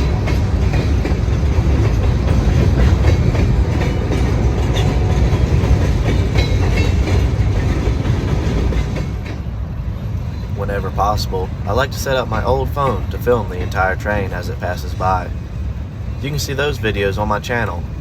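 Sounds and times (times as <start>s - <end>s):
train wheels clattering over rail joints: 0.0s - 9.5s
low train rumble: 0.0s - 18.0s.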